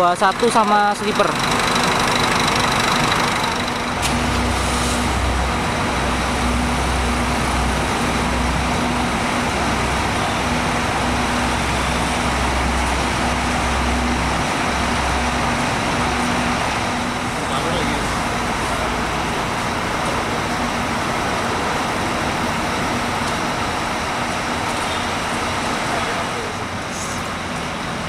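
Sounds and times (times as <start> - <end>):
diesel engines idling: 0.0 - 28.0.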